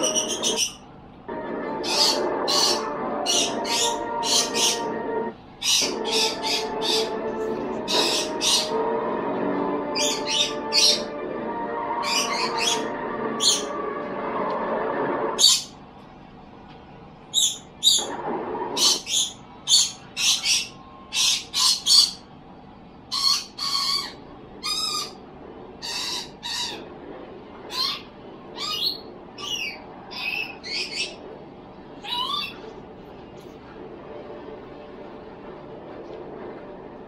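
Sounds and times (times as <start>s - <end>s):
bird chirping and squawking: 0.0s - 0.8s, 1.8s - 5.0s, 5.6s - 7.2s, 7.8s - 8.8s, 10.0s - 11.1s, 12.0s - 13.7s, 15.4s - 15.8s, 17.3s - 22.2s, 23.1s - 25.2s, 25.8s - 26.9s, 27.7s - 31.2s, 32.0s - 32.6s
steady layered tone: 1.3s - 5.4s, 6.3s - 15.4s.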